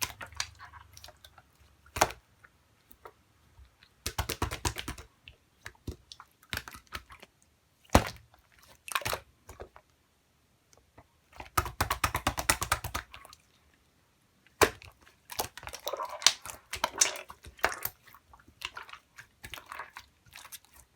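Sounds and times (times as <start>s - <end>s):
sharp slime pop: 1.9s - 2.2s, 4.0s - 5.1s, 7.9s - 8.2s, 14.6s - 15.6s.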